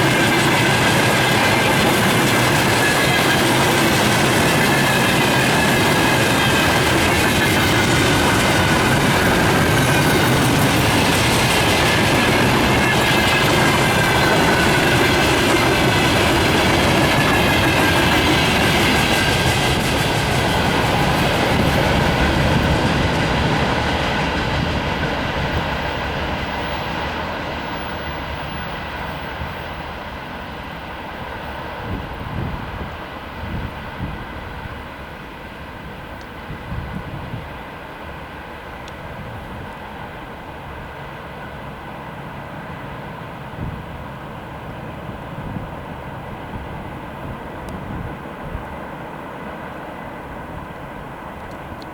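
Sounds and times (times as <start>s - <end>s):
train wheels clattering on rails: 0.0s - 34.9s.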